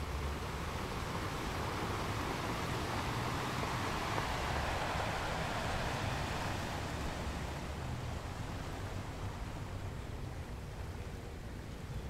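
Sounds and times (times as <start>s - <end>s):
ocean surf breaking over rocks: 2.0s - 9.6s.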